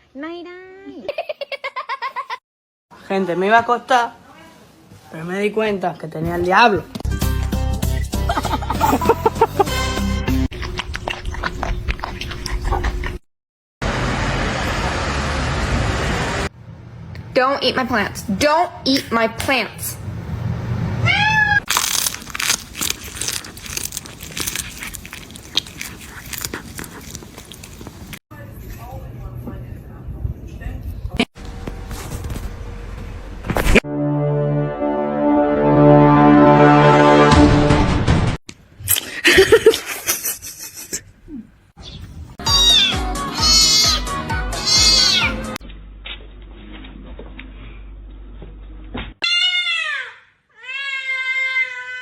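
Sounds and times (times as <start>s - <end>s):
cat meowing: 21.0s - 21.7s, 42.4s - 45.6s, 50.6s - 52.0s
cat chewing crunchily: 21.7s - 28.2s
low horn-like tone: 33.8s - 37.6s.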